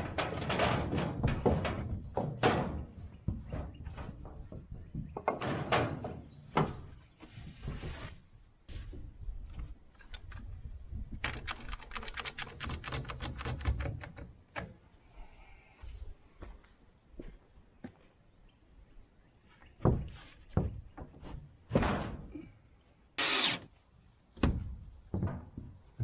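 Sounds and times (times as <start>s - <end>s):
knocks and clatter: 0.0s - 6.9s.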